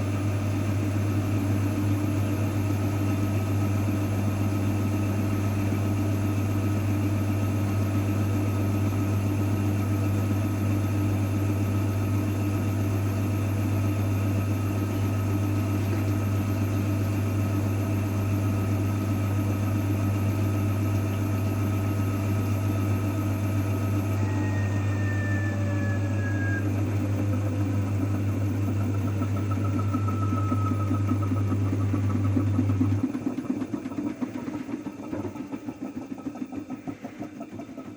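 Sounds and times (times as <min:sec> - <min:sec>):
washing machine humming: 0:00.0 - 0:37.9
motor whine sliding in pitch: 0:23.4 - 0:31.9.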